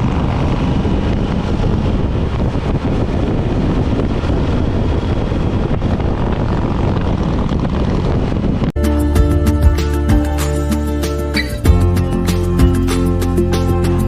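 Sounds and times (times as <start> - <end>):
wind rushing over microphone: 0.0 - 8.8
motorcycle engine droning: 0.0 - 14.0.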